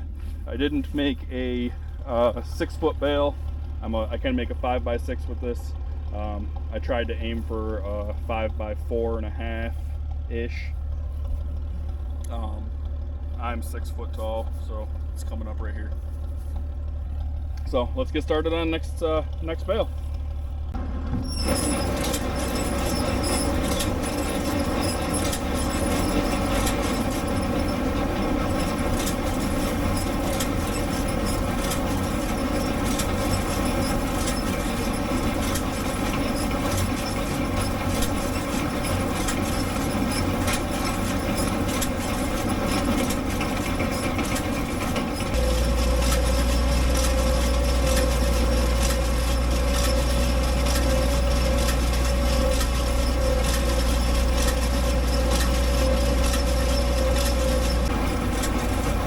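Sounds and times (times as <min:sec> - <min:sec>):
steady whine: 0:00.0 - 0:59.0
tractor engine hum: 0:00.0 - 0:59.0
baler clattering: 0:15.9 - 0:59.0.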